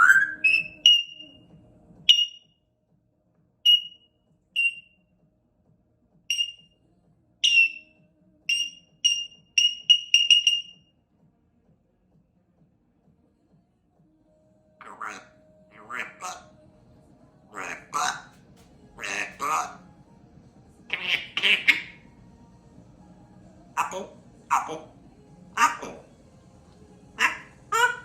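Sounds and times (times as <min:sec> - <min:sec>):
parrot whistling: 0:00.0 - 0:01.4, 0:02.1 - 0:02.4, 0:03.7 - 0:04.9, 0:06.3 - 0:06.7, 0:07.4 - 0:07.9, 0:08.5 - 0:10.8.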